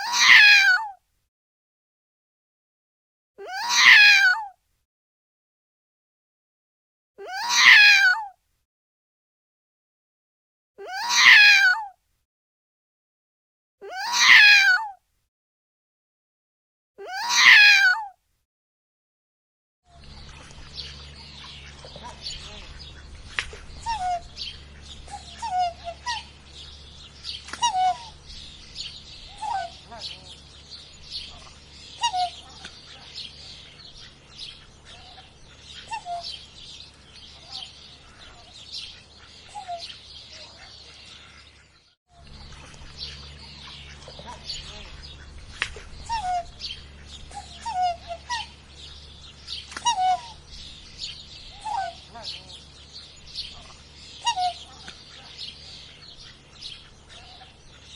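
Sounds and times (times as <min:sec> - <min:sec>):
high bird chirps: 0:19.9 - 0:57.9
steady low hum: 0:19.9 - 0:57.9
bird calls dropping in pitch: 0:20.7 - 0:30.1.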